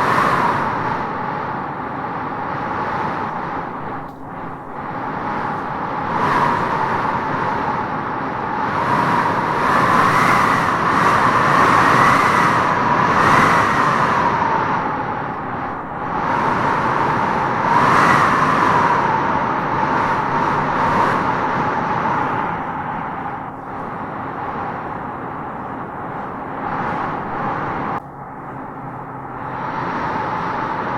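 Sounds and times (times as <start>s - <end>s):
wind howling through trees: 0.0s - 30.9s.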